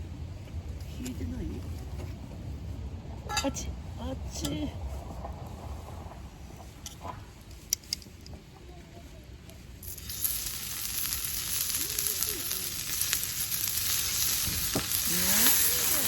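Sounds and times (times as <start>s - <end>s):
food sizzling on a griddle: 9.8s - 16.0s.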